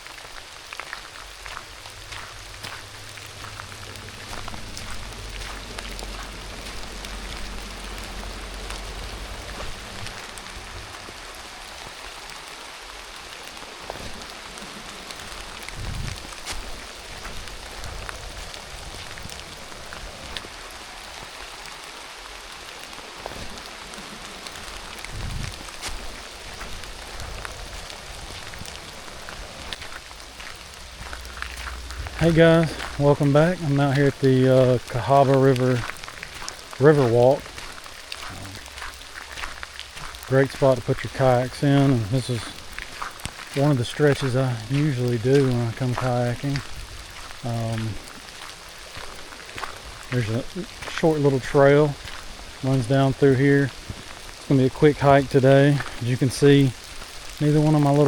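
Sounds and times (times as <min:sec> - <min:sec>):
sharper raindrop hits: 0:00.0 - 0:58.0
steady rain falling: 0:00.0 - 0:58.0
low rumble: 0:00.7 - 0:13.2, 0:13.8 - 0:21.5, 0:23.3 - 0:50.9
soft low thumps: 0:01.1 - 0:12.0, 0:25.0 - 0:35.0.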